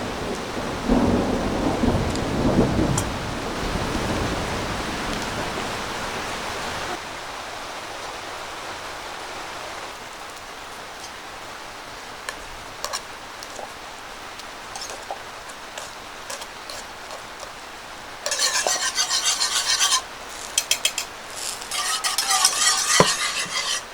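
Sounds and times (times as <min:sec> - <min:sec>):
thunder rumbling: 0:00.0 - 0:07.0
heavy rain on a tent roof: 0:00.0 - 0:18.3, 0:20.0 - 0:21.7.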